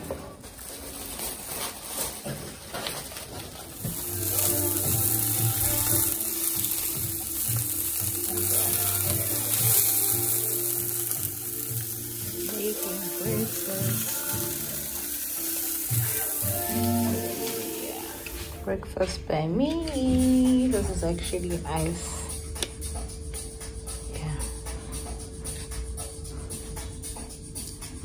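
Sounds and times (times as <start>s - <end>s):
background music: 0.0s - 28.0s
food sizzling in a frying pan: 3.7s - 18.6s.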